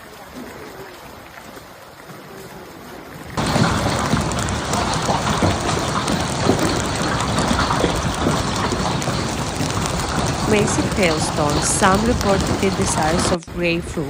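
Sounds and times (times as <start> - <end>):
heavy hail clattering: 3.4 - 14.0.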